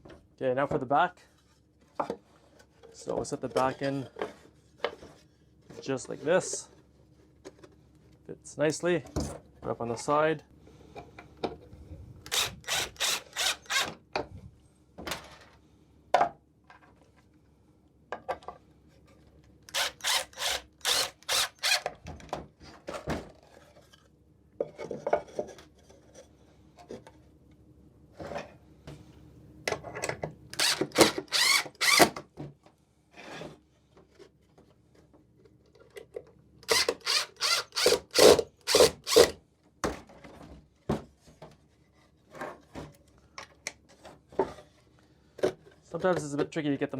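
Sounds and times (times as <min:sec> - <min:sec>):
hand tool rasping wood: 0:12.3 - 0:13.9, 0:19.7 - 0:21.9, 0:36.7 - 0:39.3.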